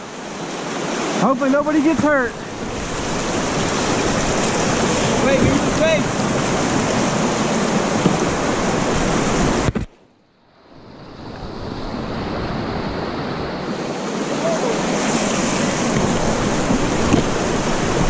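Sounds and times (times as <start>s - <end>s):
fast-flowing river water: 0.0s - 9.7s, 10.6s - 18.0s
wind noise on microphone: 2.6s - 9.9s, 10.8s - 18.0s.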